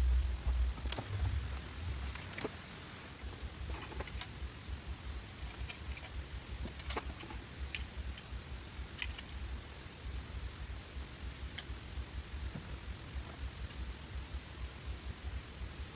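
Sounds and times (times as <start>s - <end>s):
low rumble: 0.0s - 2.4s.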